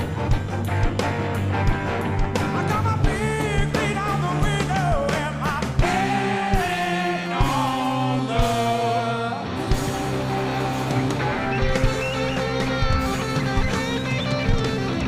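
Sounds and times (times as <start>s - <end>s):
bass: 0.0s - 15.0s
drums: 0.0s - 15.0s
electric guitar: 0.0s - 15.0s
person singing: 2.5s - 9.6s.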